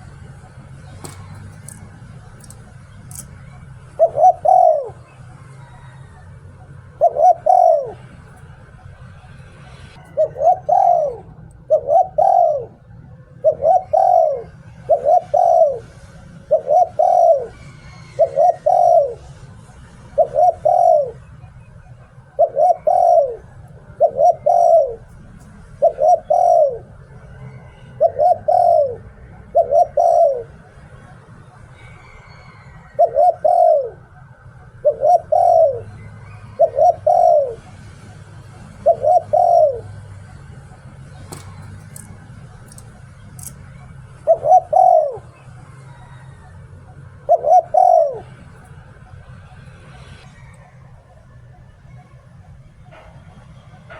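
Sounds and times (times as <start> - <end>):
dove cooing: 0.0 - 53.9.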